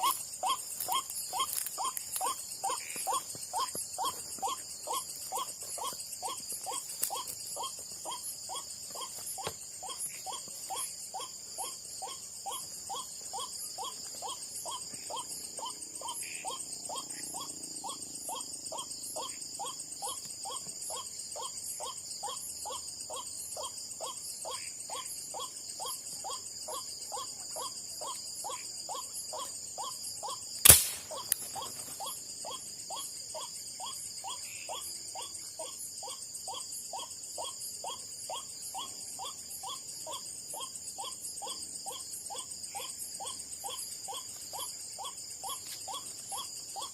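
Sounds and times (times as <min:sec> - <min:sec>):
night insects trilling: 0:00.0 - 0:46.9
sharp gun crack: 0:30.6 - 0:31.4.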